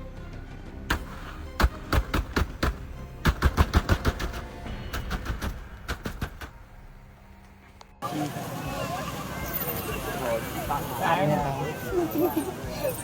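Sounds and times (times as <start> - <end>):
background music: 0.0 - 13.0
sharp cracks or bangs: 0.9 - 6.8.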